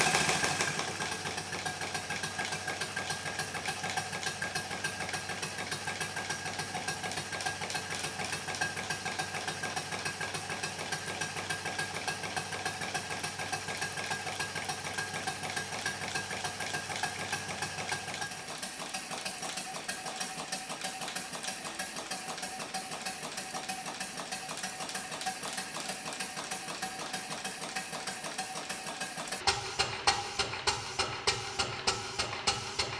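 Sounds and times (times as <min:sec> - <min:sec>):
model steam engine exhaust beats: 0:00.0 - 0:32.9.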